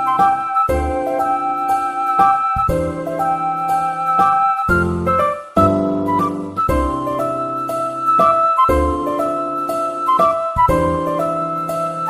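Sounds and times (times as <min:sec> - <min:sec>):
soft piano chords with melody: 0:00.0 - 0:12.0.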